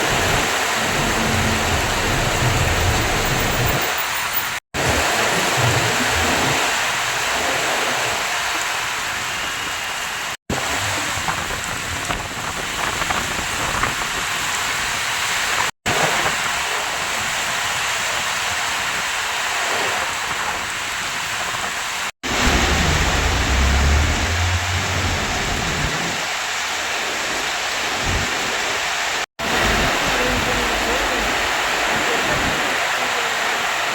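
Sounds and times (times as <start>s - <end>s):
heavy rain pouring: 0.0s - 33.9s
low rumble: 0.2s - 3.8s, 22.3s - 26.2s.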